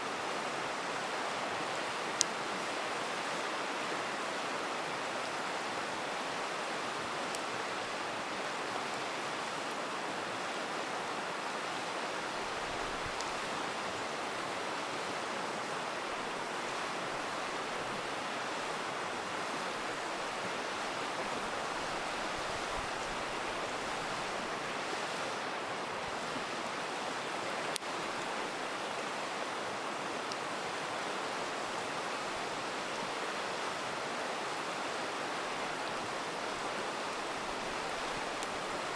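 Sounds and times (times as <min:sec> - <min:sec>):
river rushing: 0:00.0 - 0:38.9
campfire crackling and popping: 0:12.3 - 0:13.5, 0:37.2 - 0:38.9.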